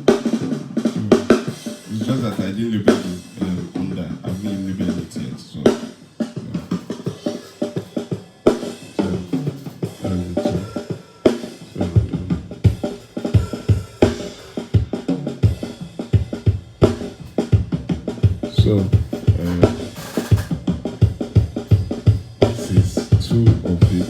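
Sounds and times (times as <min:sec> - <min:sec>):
drum kit groove: 0:00.0 - 0:24.0
bass line: 0:00.9 - 0:01.4, 0:11.8 - 0:12.7, 0:18.4 - 0:20.6, 0:22.4 - 0:24.0.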